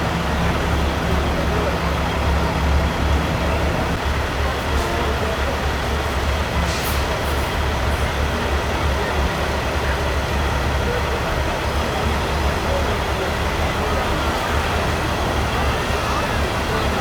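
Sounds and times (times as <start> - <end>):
diesel truck engines rumbling: 0.0 - 17.0
air brakes hissing: 6.6 - 7.6.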